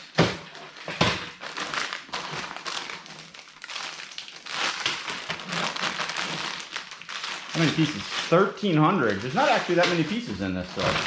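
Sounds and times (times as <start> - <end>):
plastic bags and cardboard rustling: 0.0 - 11.0.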